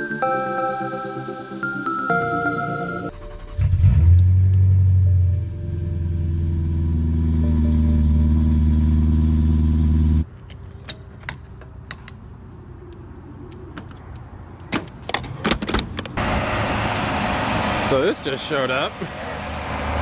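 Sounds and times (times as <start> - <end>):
car engine humming: 3.1 - 10.4, 12.5 - 20.0.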